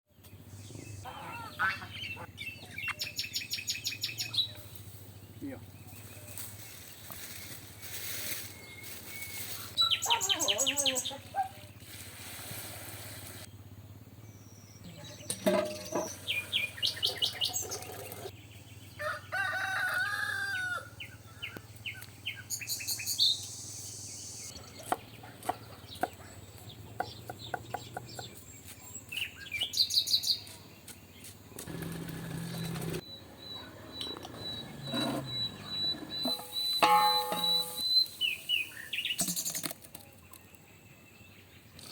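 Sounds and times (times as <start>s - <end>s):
birds chirping: 0.1s - 11.8s, 13.4s - 41.9s.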